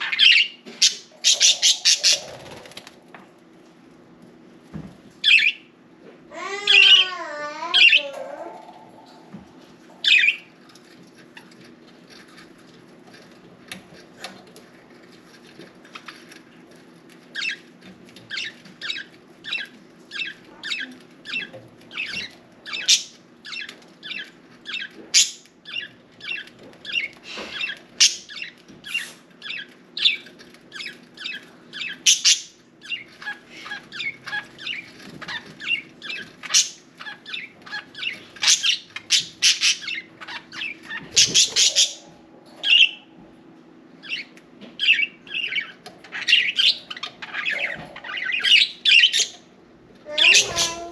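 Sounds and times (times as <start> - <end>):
budgerigars chirping: 0.0 - 2.8, 10.0 - 10.5, 17.4 - 17.6, 18.2 - 43.1, 44.0 - 49.5.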